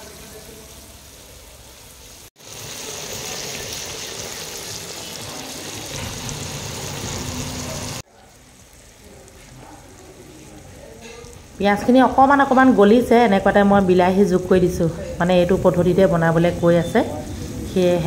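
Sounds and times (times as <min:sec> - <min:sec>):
food sizzling in hot oil: 0:00.0 - 0:14.2.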